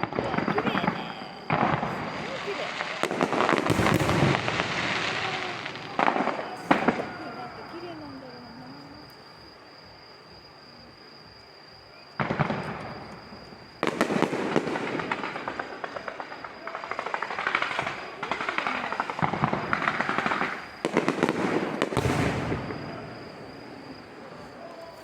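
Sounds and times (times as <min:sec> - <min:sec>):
firework bangs: 0:00.0 - 0:08.6, 0:12.2 - 0:25.0
fireworks crackling and popping: 0:00.0 - 0:09.2, 0:12.2 - 0:25.0.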